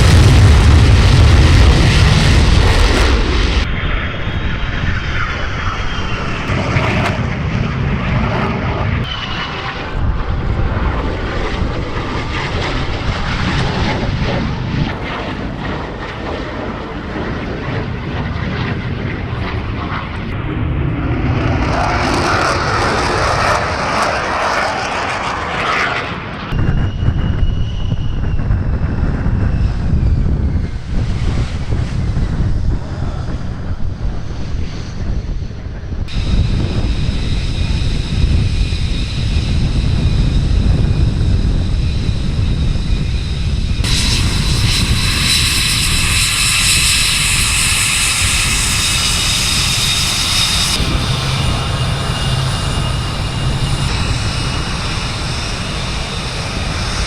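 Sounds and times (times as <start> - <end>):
jet engine rumble: 0.0 - 57.0
high whine sliding down in pitch: 20.2 - 32.1, 36.1 - 57.0.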